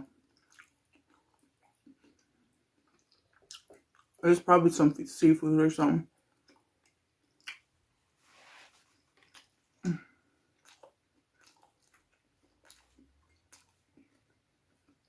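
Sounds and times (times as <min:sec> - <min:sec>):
person chewing with mouth clicks: 0:00.0 - 0:04.2, 0:06.4 - 0:07.7, 0:09.0 - 0:15.0.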